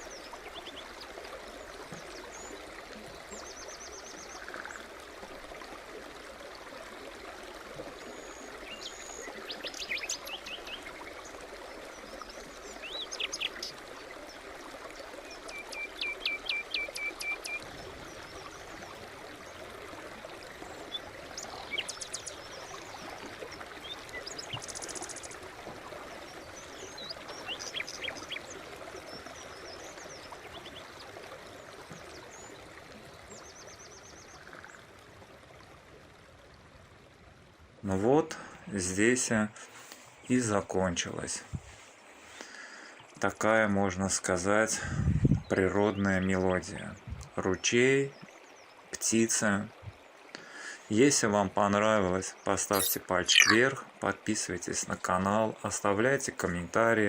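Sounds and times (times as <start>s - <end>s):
brook running over stones: 0.0s - 43.5s, 45.4s - 51.3s, 51.9s - 56.7s
birds singing: 8.1s - 13.8s, 15.3s - 18.6s, 20.7s - 23.0s, 26.3s - 30.8s, 52.7s - 53.8s.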